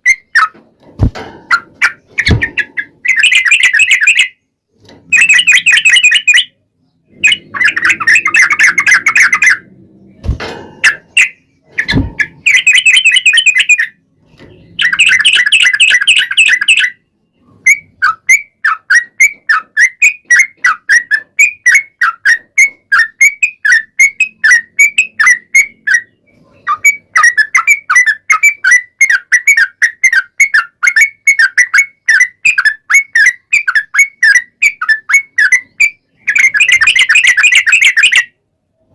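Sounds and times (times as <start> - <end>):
bird singing: 1.5 - 38.4
low thuds: 10.1 - 10.9, 11.8 - 12.4.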